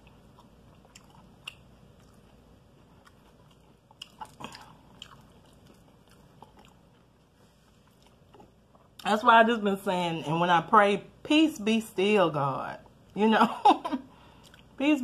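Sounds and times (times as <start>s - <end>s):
chewing crispy chicken: 0.0s - 9.1s.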